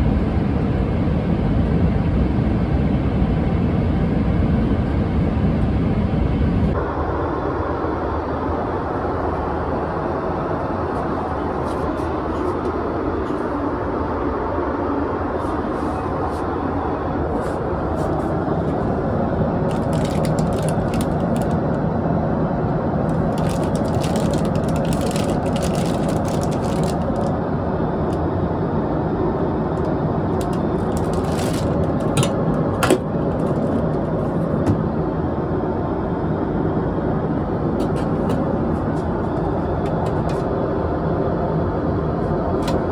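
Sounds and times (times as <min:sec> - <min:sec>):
airliner cabin engine and air noise: 0:00.0 - 0:42.9.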